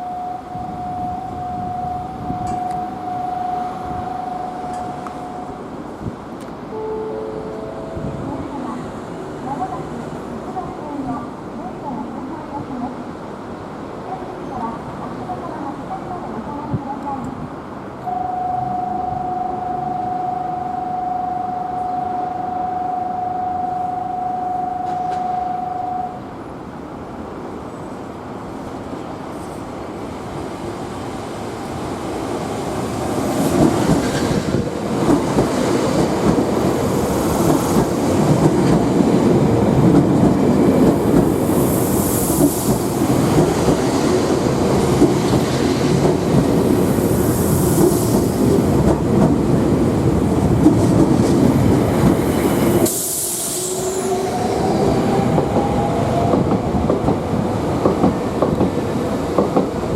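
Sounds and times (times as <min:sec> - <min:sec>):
electronic tone: 0:00.0 - 0:05.6, 0:06.7 - 0:08.5, 0:18.0 - 0:26.2
electric train rumbling: 0:00.0 - 0:59.9
high wheel squeals: 0:52.3 - 0:55.2.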